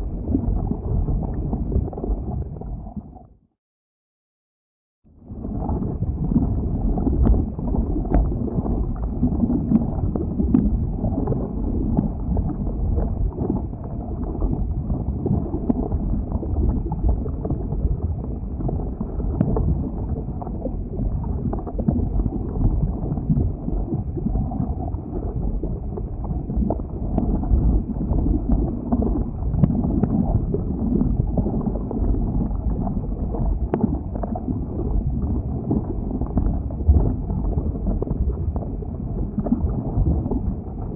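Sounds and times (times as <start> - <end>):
lava flowing crackle: 0.0 - 3.0, 5.4 - 40.9.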